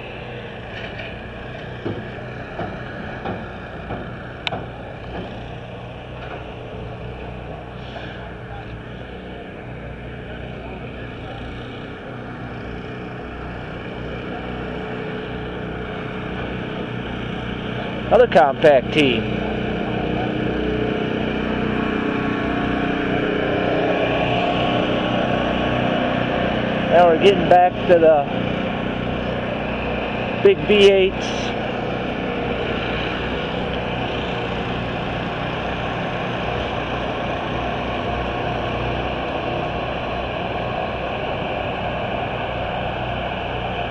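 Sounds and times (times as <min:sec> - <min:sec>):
engine humming: 0:00.0 - 0:43.9
steady rumbling noise: 0:00.0 - 0:43.9.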